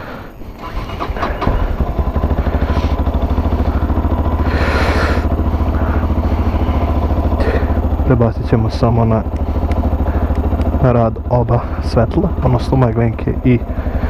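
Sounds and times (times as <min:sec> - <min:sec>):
motorcycle engine idling: 0:00.0 - 0:14.0
clicks: 0:09.2 - 0:10.8.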